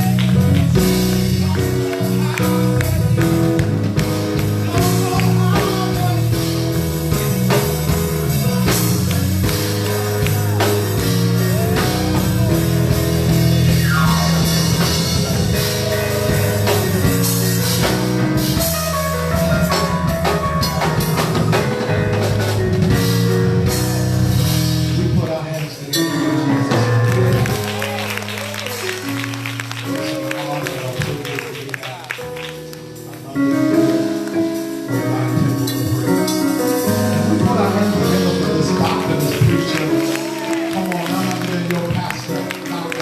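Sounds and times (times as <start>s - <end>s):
live band playing: 0.0s - 43.0s
person singing: 4.5s - 6.8s, 8.0s - 17.9s, 35.3s - 43.0s.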